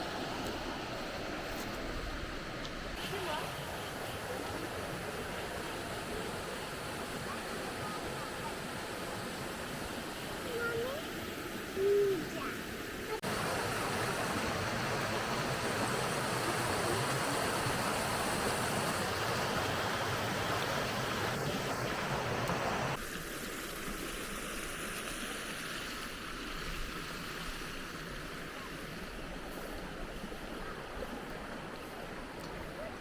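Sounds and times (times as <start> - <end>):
waterfall rushing: 3.0 - 25.6.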